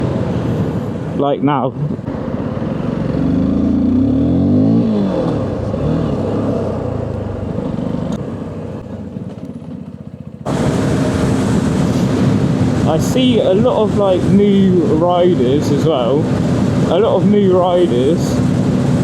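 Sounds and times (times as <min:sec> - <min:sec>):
motorcycle engine accelerating: 0:01.8 - 0:19.0.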